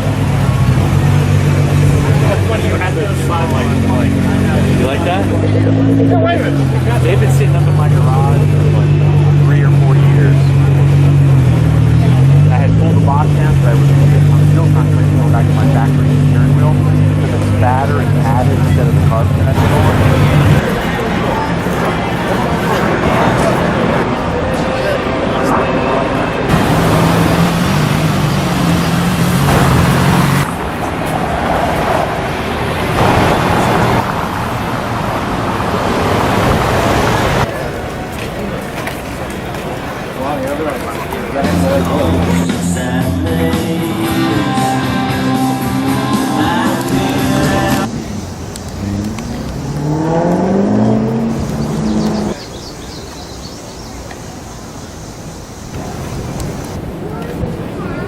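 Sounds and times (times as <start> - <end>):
car engine running: 0.0 - 31.3, 45.3 - 52.4
street traffic noise: 0.0 - 58.0.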